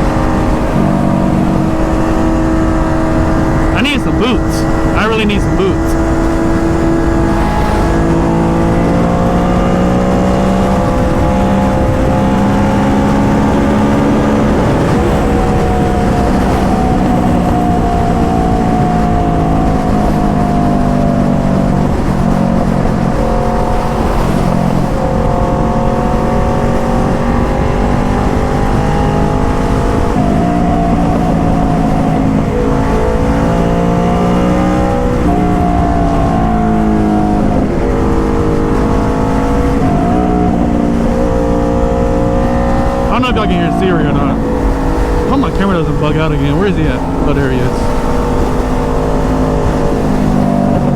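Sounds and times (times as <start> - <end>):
motorcycle engine changing gears: 0.0 - 50.9
wind on microphone: 5.8 - 43.1.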